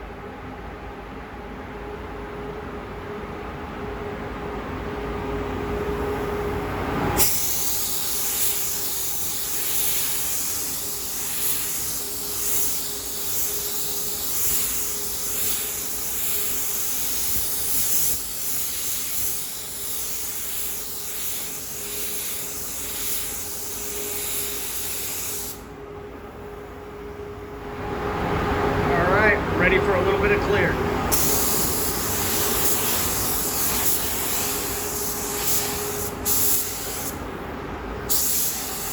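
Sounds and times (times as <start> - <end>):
steady background hum: 0.0 - 38.9
spray gun air hiss: 7.2 - 25.7, 31.1 - 37.3, 38.0 - 38.9.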